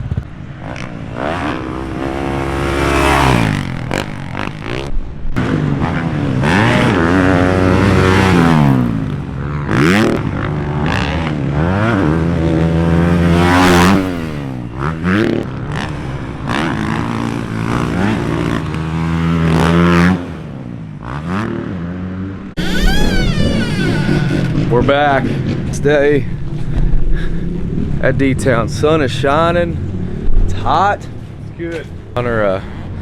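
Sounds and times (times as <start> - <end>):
dirt bike engines revving: 0.5 - 26.6.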